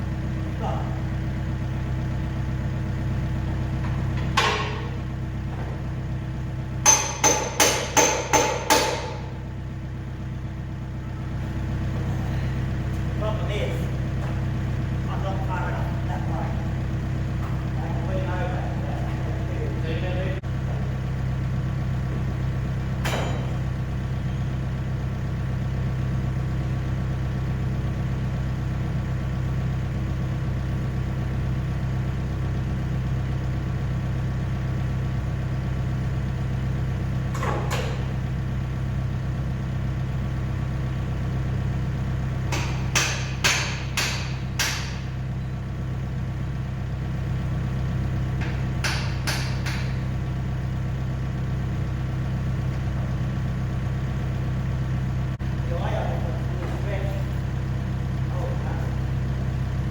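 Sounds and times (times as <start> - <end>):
diesel engine idling: 0.0 - 59.9
sharp metal knocks: 4.2 - 5.0, 6.8 - 9.4, 23.0 - 23.6, 42.5 - 45.1, 48.4 - 50.1.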